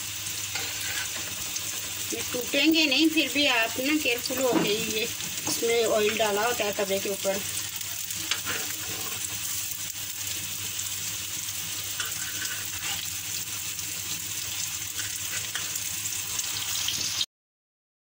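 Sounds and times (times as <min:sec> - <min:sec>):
food sizzling in oil: 0:00.0 - 0:17.3
metal spatula taps and scrapes: 0:08.2 - 0:08.8.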